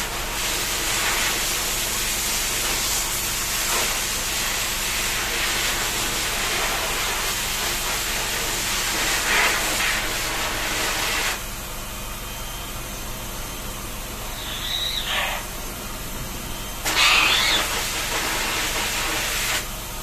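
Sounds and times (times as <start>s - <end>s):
water spraying hiss: 16.8s - 19.7s.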